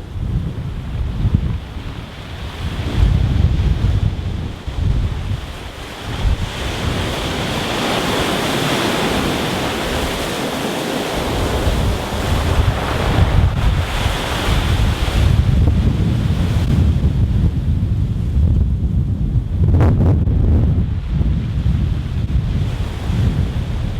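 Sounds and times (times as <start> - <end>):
wind buffeting microphone: 0.0 - 23.9
waves washing over stones: 5.4 - 15.7.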